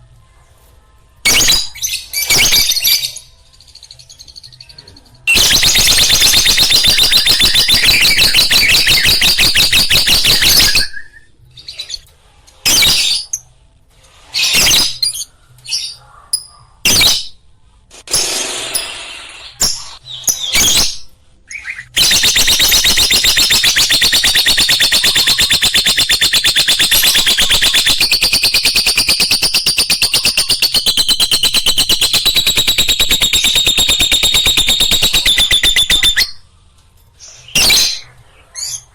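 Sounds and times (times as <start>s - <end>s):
lovebird chattering shrill trill: 5.3s - 11.0s, 22.0s - 36.4s.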